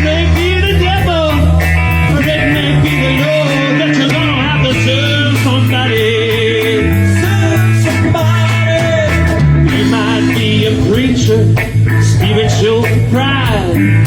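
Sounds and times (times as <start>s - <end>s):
bass line: 0.0s - 14.0s
electric guitar: 0.0s - 14.0s
drum beat: 6.4s - 14.0s.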